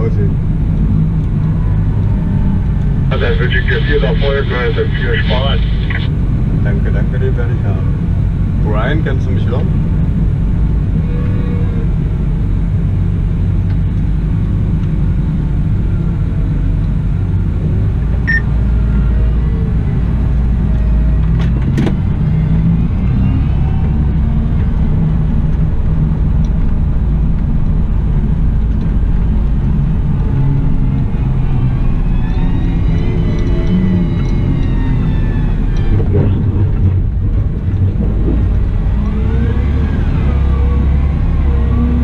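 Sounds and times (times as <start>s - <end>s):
loader diesel engine running: 0.0s - 11.0s.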